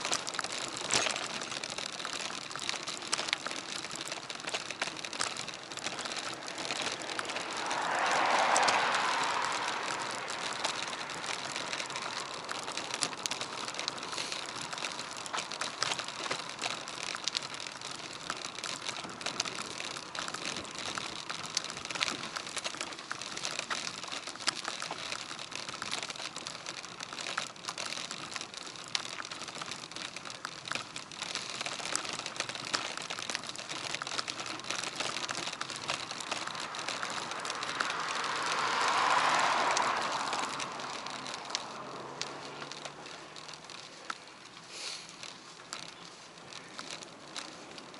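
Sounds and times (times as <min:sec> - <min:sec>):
bicycle clicking and rattling: 0:00.0 - 0:47.9
road and wind noise: 0:00.0 - 0:47.9.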